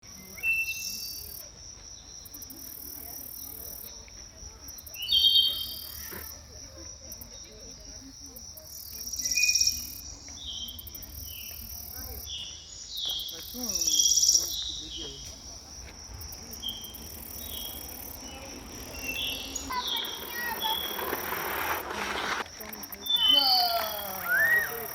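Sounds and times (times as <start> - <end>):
insects stridulating: 0.1 - 24.9
short high insect chirps: 16.2 - 21.8.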